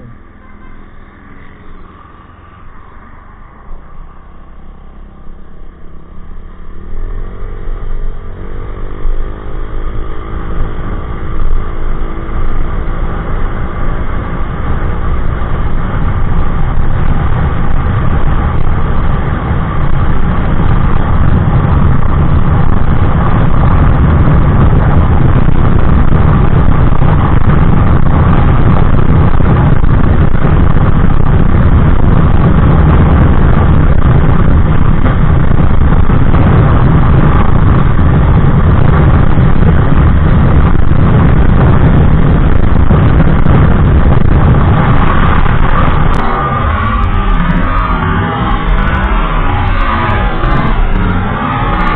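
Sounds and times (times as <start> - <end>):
rushing wind noise: 0.0 - 51.9
scooter engine accelerating: 41.8 - 51.9.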